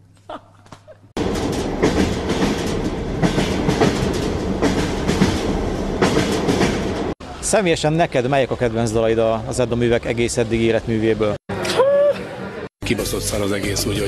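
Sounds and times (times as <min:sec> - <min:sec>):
train rumble: 0:01.2 - 0:07.2
wheels knocking over rail joints: 0:01.2 - 0:07.2.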